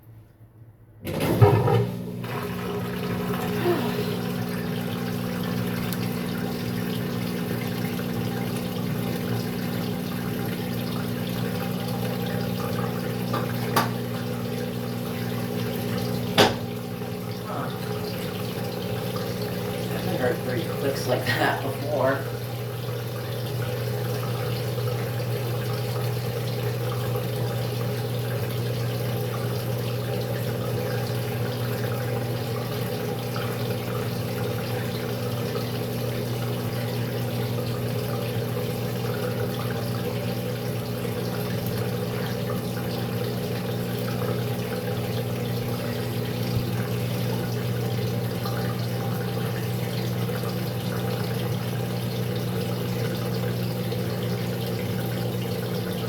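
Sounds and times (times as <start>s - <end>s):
washing machine electrical hum: 0.0s - 56.0s
water rushing in washer: 1.0s - 56.0s.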